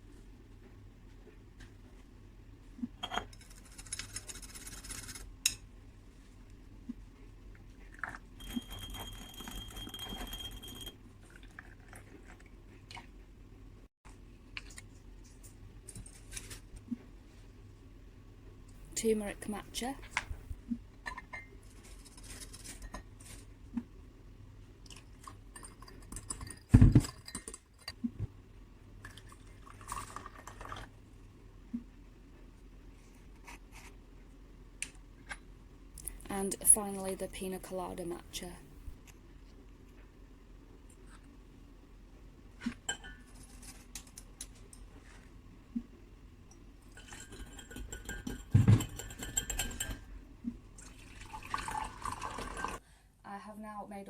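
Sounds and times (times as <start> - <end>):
spoon clinking against cup: 8.4 - 11.0, 47.0 - 50.0
brisk whisking: 46.9 - 50.1.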